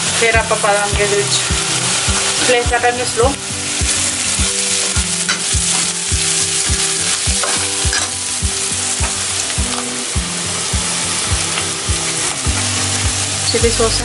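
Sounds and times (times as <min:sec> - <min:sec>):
vegetables sizzling in hot oil: 0:00.0 - 0:14.0
metal ladle stirring in a pan: 0:03.6 - 0:09.9.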